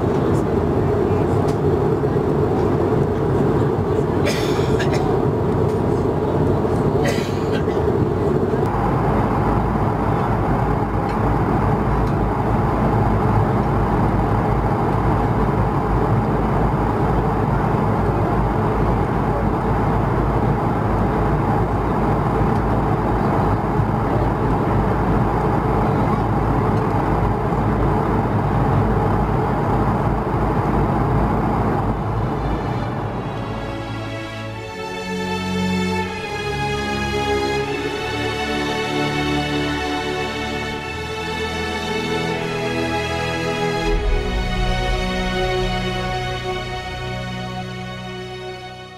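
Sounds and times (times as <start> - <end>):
jet engine drone in cabin: 0.0 - 48.9
air rushing past fuselage: 42.9 - 48.2.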